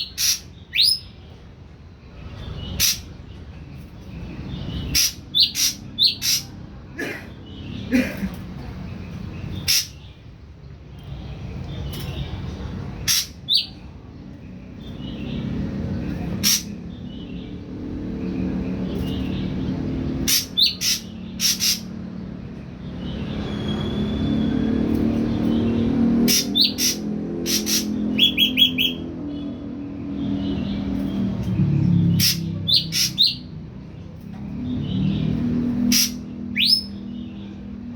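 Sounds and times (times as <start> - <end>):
bird calling sharp notes: 4.9 - 6.6, 20.2 - 21.9, 26.3 - 29.0, 32.2 - 33.5, 35.8 - 37.0.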